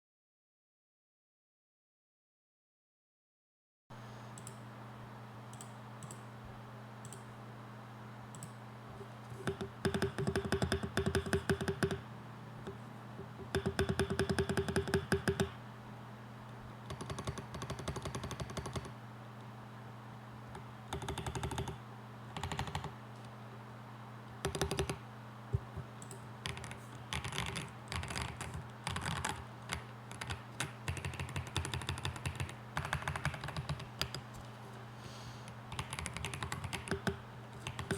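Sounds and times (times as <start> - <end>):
steady low hum: 3.9 - 37.9
mechanical keyboard typing: 9.4 - 12.0, 13.5 - 15.5, 16.9 - 18.9, 20.9 - 21.8, 22.4 - 22.9, 24.4 - 25.0, 26.0 - 34.3, 35.7 - 37.9.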